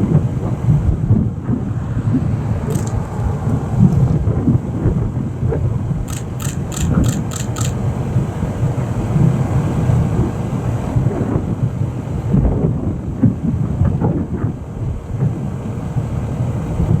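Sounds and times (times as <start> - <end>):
thunder rumble: 0.0 - 6.1
wind buffeting microphone: 0.0 - 17.0.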